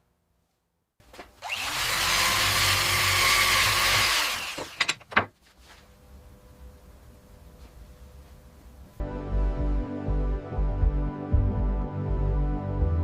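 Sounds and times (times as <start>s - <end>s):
power tool cutting wood: 1.4s - 4.9s.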